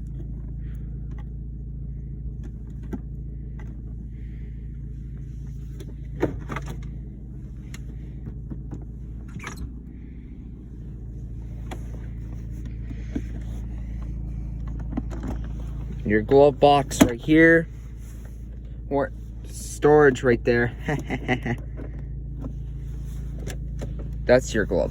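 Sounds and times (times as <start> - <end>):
car engine idling: 0.0 - 24.9
clicks and knocks of controls: 5.7 - 9.9, 11.5 - 17.7, 20.0 - 24.9.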